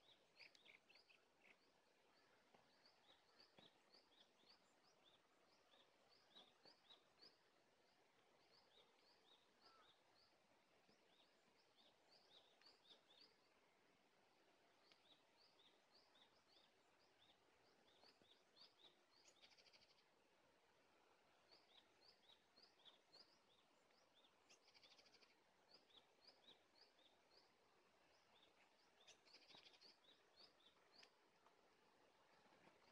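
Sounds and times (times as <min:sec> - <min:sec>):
small bird chirps: 0:00.0 - 0:07.5, 0:14.8 - 0:20.1, 0:21.5 - 0:31.2
faint outdoor hiss: 0:00.0 - 0:32.9.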